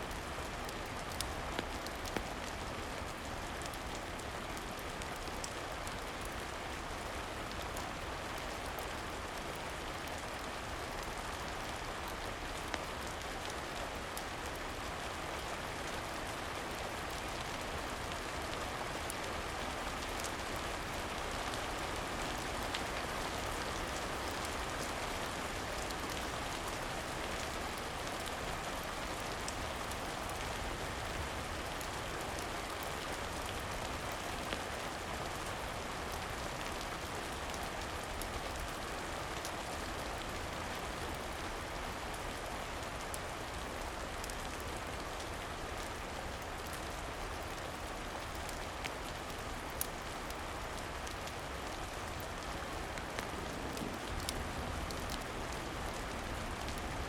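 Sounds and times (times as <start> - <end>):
steady rain: 0.0 - 57.0
wood fire crackling: 0.1 - 7.8, 8.6 - 14.6, 48.1 - 56.8.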